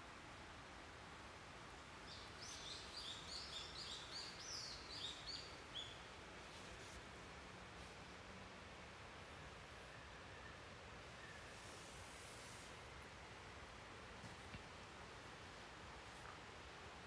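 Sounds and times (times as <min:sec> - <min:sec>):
faint steady hiss: 0:00.0 - 0:17.0
songbird chirping: 0:01.8 - 0:07.0.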